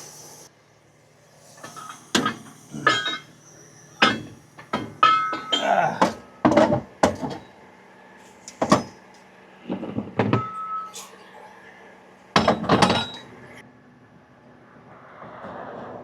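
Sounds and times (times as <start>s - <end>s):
metal clanks and knocks: 1.6s - 3.4s, 4.0s - 7.5s, 8.4s - 9.0s, 9.6s - 10.9s, 12.4s - 13.3s.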